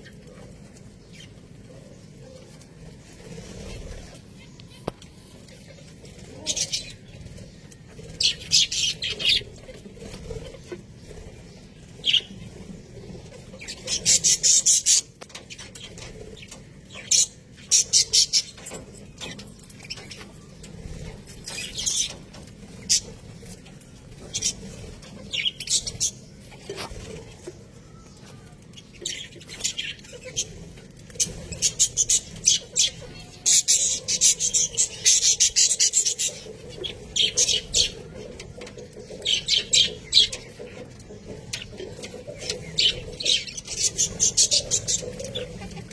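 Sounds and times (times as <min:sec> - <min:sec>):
budgerigars chirping: 0:31.2 - 0:45.9.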